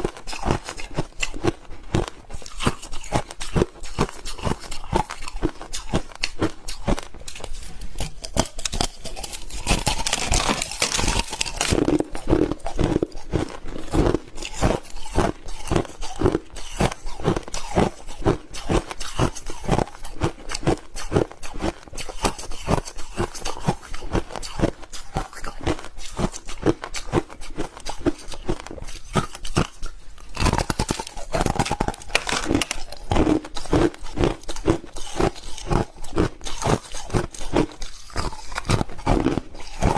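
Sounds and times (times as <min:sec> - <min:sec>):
crushed ice chewing: 0:00.0 - 0:39.9.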